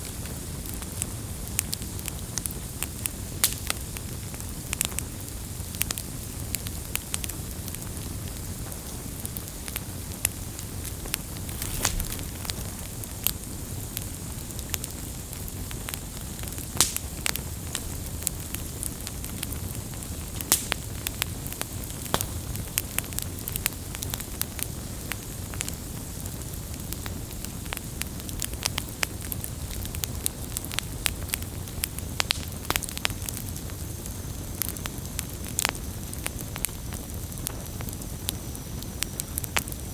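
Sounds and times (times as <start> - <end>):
wood crackling and popping: 0.0 - 5.0, 6.8 - 39.9
campfire flames rumbling: 0.0 - 39.9.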